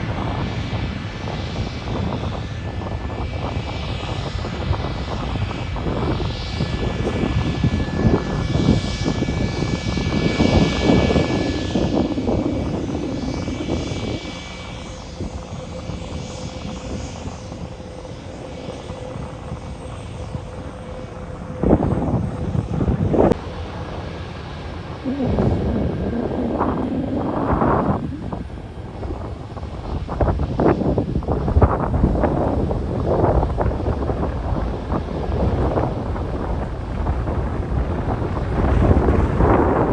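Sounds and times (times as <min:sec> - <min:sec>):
jet engines rumbling and whining: 0:00.0 - 0:39.9
brief louder rumbles: 0:25.0 - 0:29.0.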